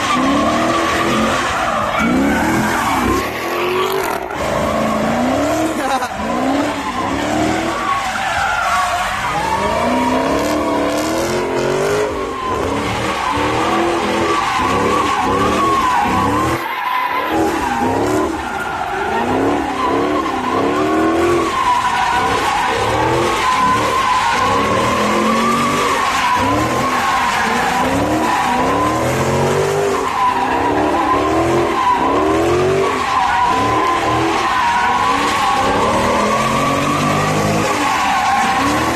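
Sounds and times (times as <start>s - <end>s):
car tyres squealing: 0.0s - 38.9s
engine revving: 9.3s - 16.6s, 19.1s - 38.9s.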